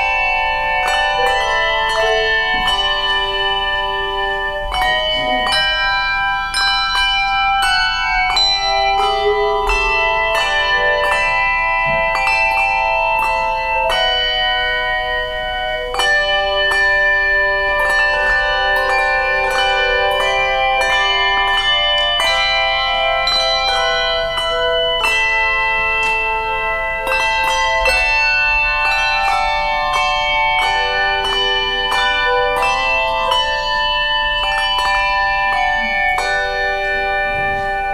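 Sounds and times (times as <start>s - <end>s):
handbell choir playing chords: 0.0s - 37.9s.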